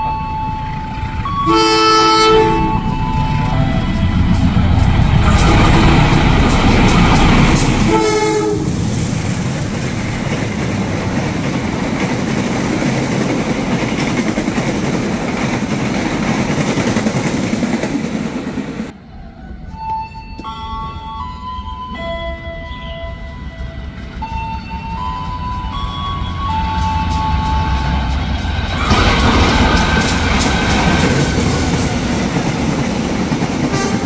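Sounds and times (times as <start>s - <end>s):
distant train horn: 0.0s - 8.9s, 22.8s - 32.4s, 33.6s - 34.0s
train passing at speed: 0.0s - 34.0s
train horn blast: 1.3s - 8.8s, 33.7s - 34.0s
wheels clicking over rail joints: 2.8s - 18.9s, 24.3s - 34.0s.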